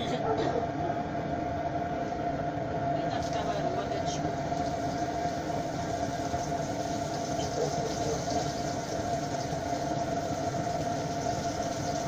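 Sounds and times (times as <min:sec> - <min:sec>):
mechanical hum: 0:00.0 - 0:12.0
fish frying in oil: 0:03.1 - 0:12.0.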